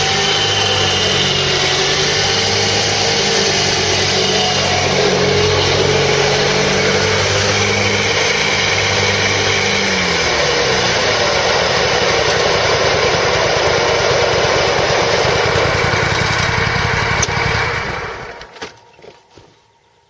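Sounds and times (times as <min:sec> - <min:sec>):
mower engine running: 0:00.0 - 0:19.3.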